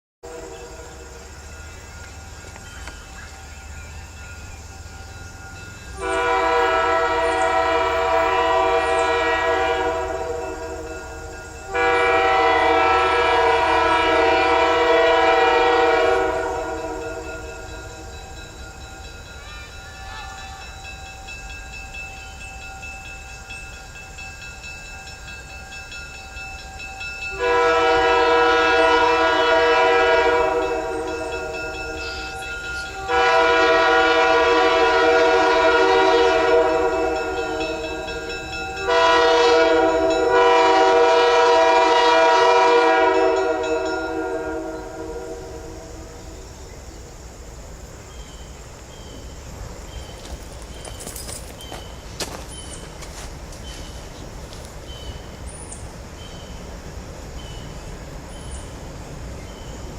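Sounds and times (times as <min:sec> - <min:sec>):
diesel locomotive horn blasts: 0:00.2 - 0:02.0, 0:05.6 - 0:18.4, 0:27.2 - 0:46.6.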